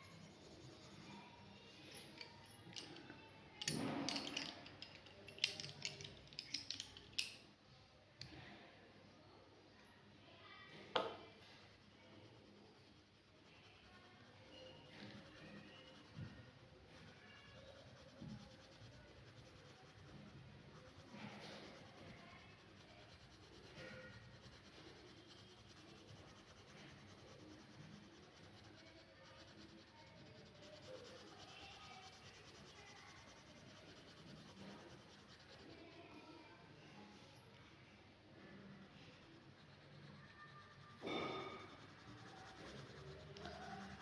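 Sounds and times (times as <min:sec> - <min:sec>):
pen scratching on paper: 0:00.0 - 0:01.5, 0:11.4 - 0:36.0, 0:38.8 - 0:44.0.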